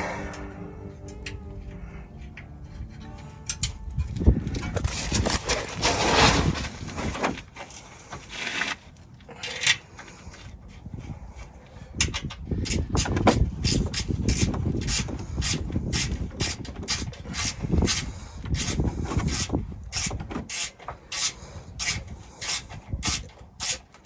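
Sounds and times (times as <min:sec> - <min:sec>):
rubbing scraping sound: 0:01.8 - 0:07.4
ratchet wrench clicking: 0:18.6 - 0:23.9.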